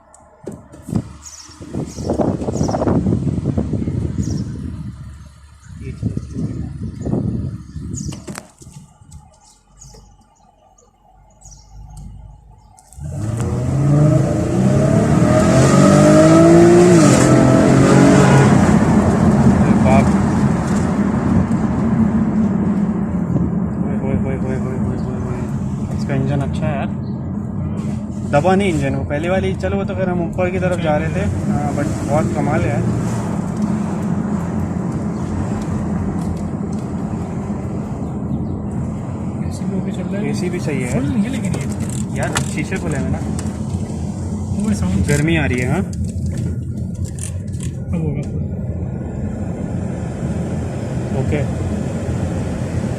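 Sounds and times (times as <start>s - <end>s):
road and wind noise: 0.0s - 52.9s
car engine accelerating hard: 12.9s - 52.9s.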